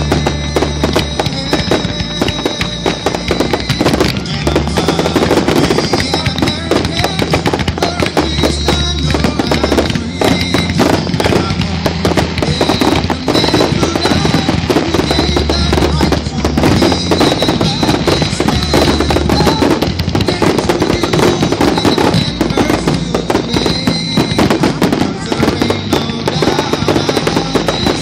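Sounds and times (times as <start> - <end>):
fireworks bursting: 0.0 - 28.0.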